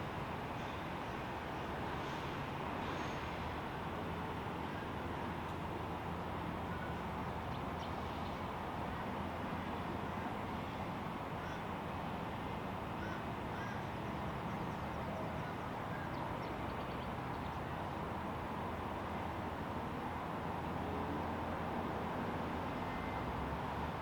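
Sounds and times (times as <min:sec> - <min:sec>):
distant aircraft noise: 0:00.0 - 0:24.0
faint bird calls: 0:11.4 - 0:11.7, 0:13.0 - 0:17.7.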